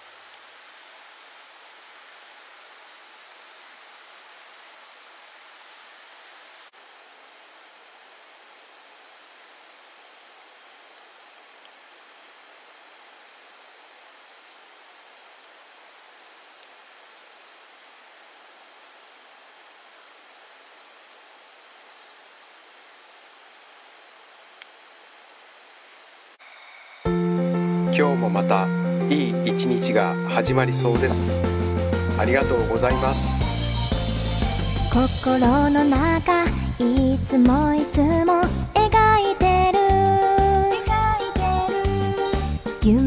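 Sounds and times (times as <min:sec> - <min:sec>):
insects trilling: 0:00.0 - 0:27.6.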